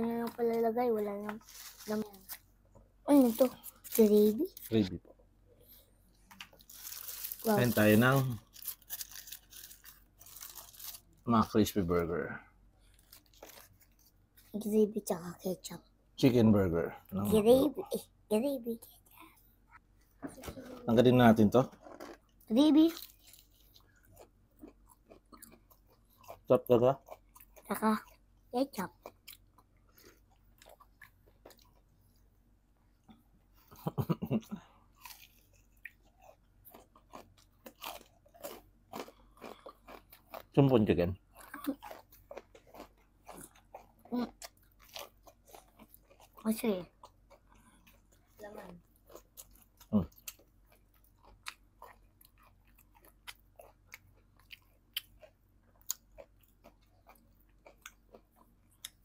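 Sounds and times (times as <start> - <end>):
crunching fried chicken: 6.4 - 11.3, 12.8 - 14.4, 35.0 - 59.0.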